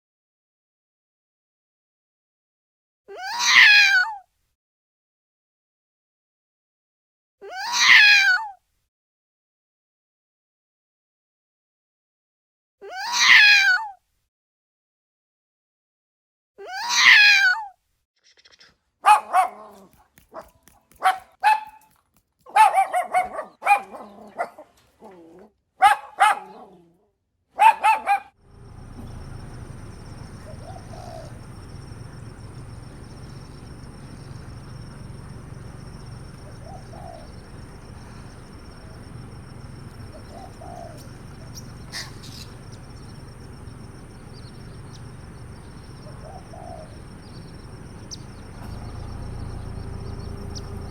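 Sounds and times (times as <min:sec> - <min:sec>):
dog barking: 0:19.0 - 0:24.8, 0:25.8 - 0:26.9, 0:27.6 - 0:28.4
faint low call: 0:28.5 - 0:50.9
steady background hum: 0:28.5 - 0:50.9.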